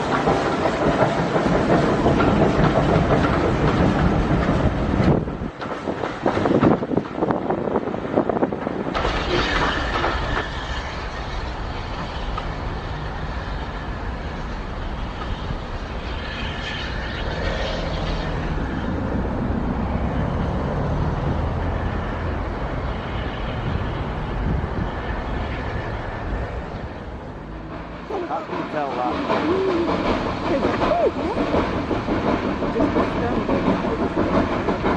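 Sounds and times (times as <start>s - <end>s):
steam train rumbling on rails: 0.0s - 34.9s.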